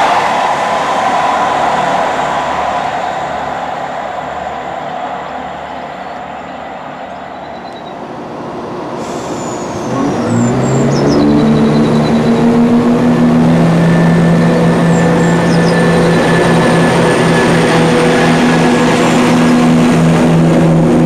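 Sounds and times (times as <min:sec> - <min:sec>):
diesel train engine rumbling: 0:00.0 - 0:21.0.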